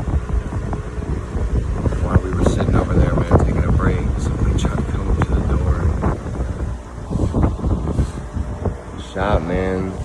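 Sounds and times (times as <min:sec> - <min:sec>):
low rumbling microphone noise: 0:00.0 - 0:10.0.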